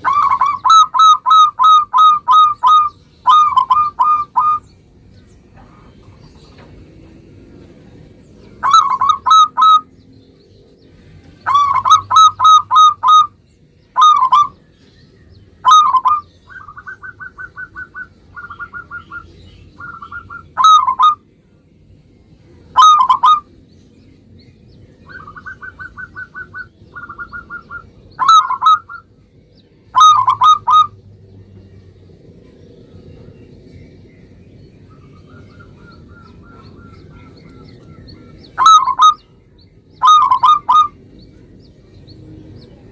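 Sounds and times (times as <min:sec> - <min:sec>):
dove cooing: 0:00.0 - 0:04.6, 0:08.6 - 0:09.9, 0:11.4 - 0:13.4, 0:14.0 - 0:14.6, 0:15.6 - 0:21.2, 0:22.8 - 0:23.5, 0:25.0 - 0:29.1, 0:29.9 - 0:31.0, 0:35.0 - 0:39.3, 0:40.0 - 0:41.0
fast pulsed dove notes: 0:30.0 - 0:30.9, 0:40.0 - 0:41.0.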